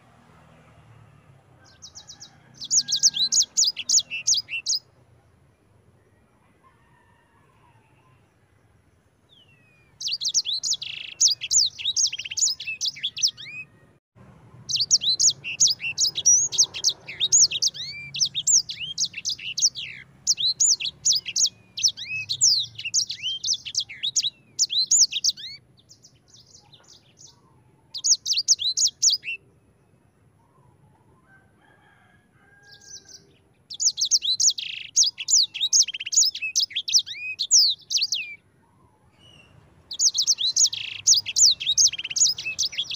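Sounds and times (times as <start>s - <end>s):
songbird trilling: 1.8s - 4.9s, 9.4s - 13.7s, 14.7s - 29.4s, 32.7s - 38.4s, 39.2s - 42.9s.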